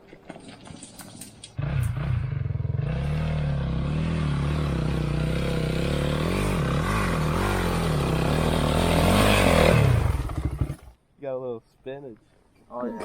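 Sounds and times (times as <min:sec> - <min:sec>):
dirt bike engine revving: 0:01.6 - 0:11.0.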